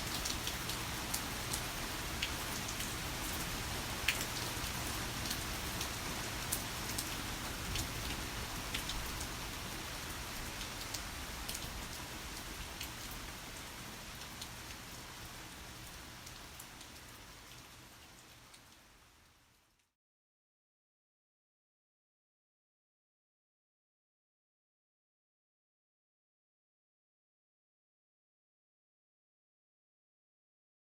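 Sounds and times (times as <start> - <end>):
heavy rain falling: 0.0 - 19.3.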